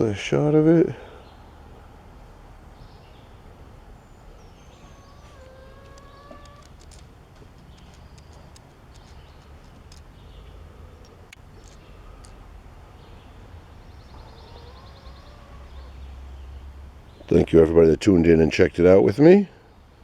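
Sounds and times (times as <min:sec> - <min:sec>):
birds calling: 0:00.0 - 0:20.0
high bird chirps: 0:04.0 - 0:12.4.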